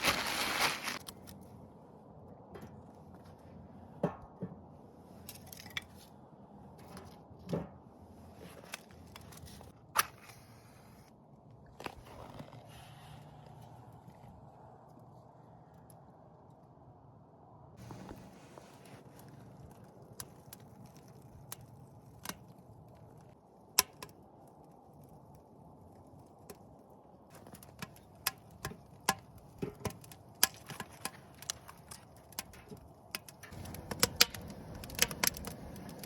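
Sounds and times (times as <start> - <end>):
campfire crackling and popping: 0.0 - 1.4, 17.8 - 36.0.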